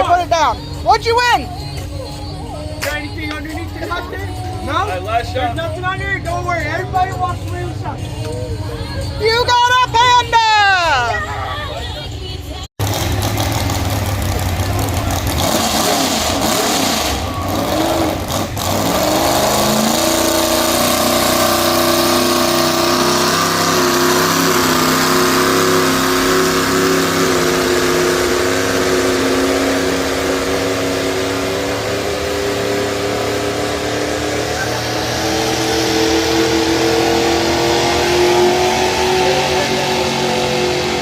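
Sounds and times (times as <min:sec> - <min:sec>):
truck engine revving: 0:11.8 - 0:41.0.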